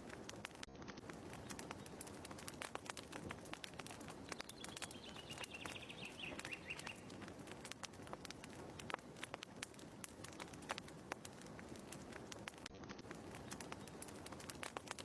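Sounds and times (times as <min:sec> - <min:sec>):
wood fire crackling and popping: 0:00.0 - 0:15.0
bird trilling: 0:04.6 - 0:07.1.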